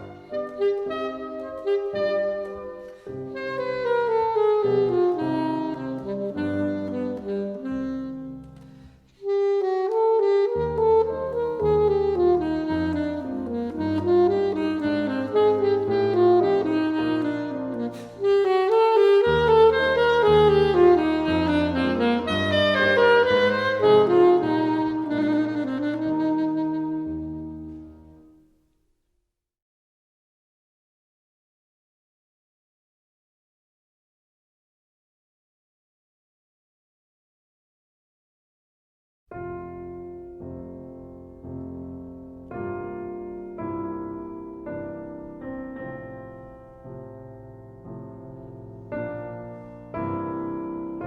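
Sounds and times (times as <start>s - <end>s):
saxophone melody: 0.0s - 28.4s, 41.3s - 51.0s
piano accompaniment: 0.0s - 28.5s, 39.3s - 51.0s.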